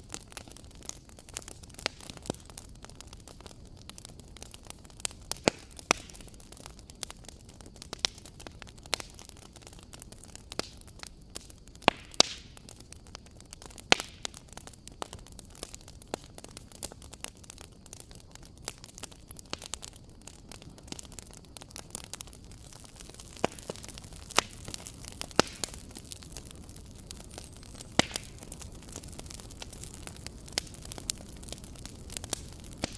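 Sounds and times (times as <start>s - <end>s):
fire crackling in a fireplace: 0.0s - 32.9s.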